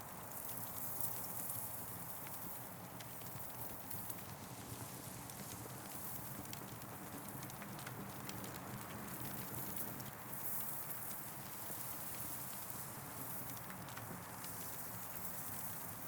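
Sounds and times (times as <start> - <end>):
campfire crackling and popping: 2.2 - 10.1.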